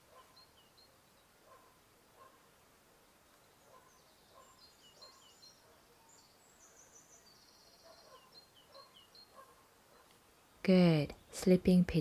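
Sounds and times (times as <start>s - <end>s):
faint bird chirps and trills: 0.0s - 2.5s, 3.1s - 12.0s.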